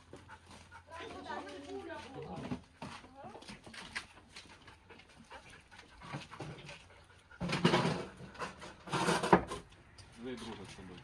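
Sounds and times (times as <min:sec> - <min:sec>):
dog panting: 0:00.0 - 0:02.1, 0:03.9 - 0:08.7.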